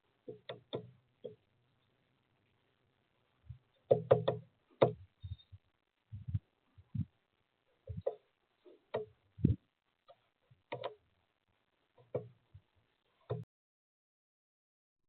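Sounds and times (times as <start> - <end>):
woodpecker tapping: 0.2 - 2.0, 3.5 - 5.6, 7.8 - 11.0, 12.0 - 12.4.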